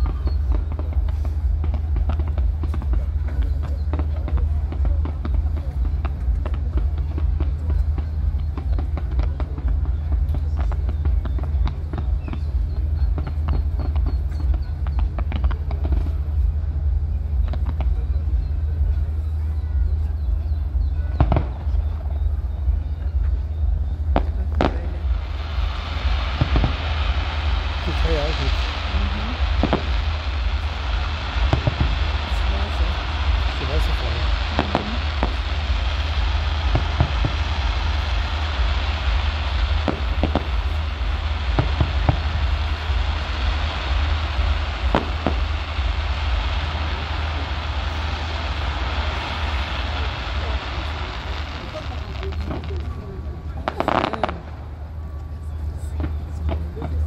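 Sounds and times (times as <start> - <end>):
fireworks banging: 0.0 - 19.4, 20.0 - 57.0
steady low rumble: 0.0 - 57.0
hissing noise: 21.0 - 57.0.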